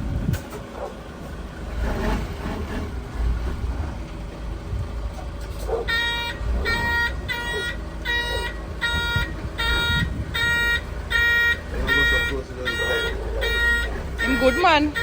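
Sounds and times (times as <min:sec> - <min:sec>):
truck engine running low: 0:00.0 - 0:15.0
reversing alarm beeping: 0:05.9 - 0:15.0.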